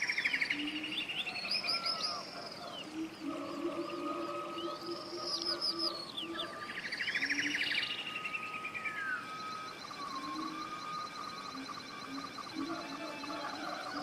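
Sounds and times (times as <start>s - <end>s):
bird trill: 0.0s - 14.0s
birds singing whistled notes: 0.0s - 14.0s
faint background noise: 0.0s - 14.0s.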